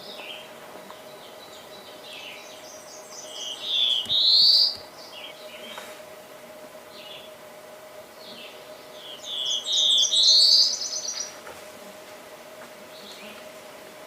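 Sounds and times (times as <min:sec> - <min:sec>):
faint steady hum: 0:00.0 - 0:14.0
small songbird chirping: 0:01.0 - 0:05.6, 0:08.2 - 0:11.4.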